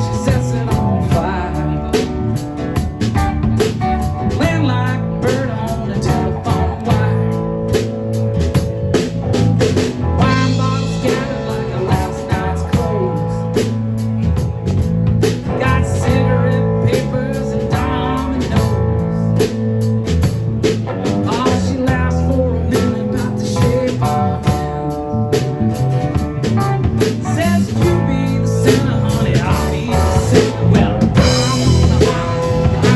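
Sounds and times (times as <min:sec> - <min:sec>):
person singing: 0:00.0 - 0:02.5, 0:03.2 - 0:07.9, 0:10.2 - 0:13.6, 0:15.5 - 0:19.3, 0:21.2 - 0:25.1, 0:27.1 - 0:32.9
blues band playing: 0:00.0 - 0:32.9.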